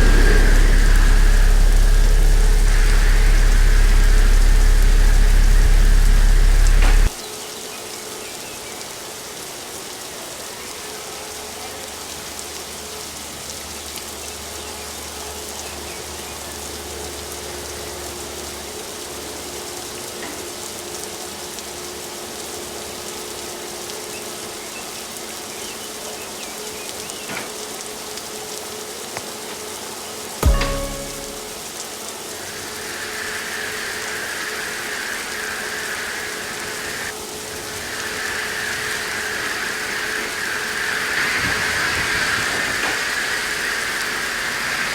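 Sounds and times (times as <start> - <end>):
loud low rumble: 0.0 - 7.1
water spray hissing on car: 0.0 - 7.5, 30.5 - 44.9.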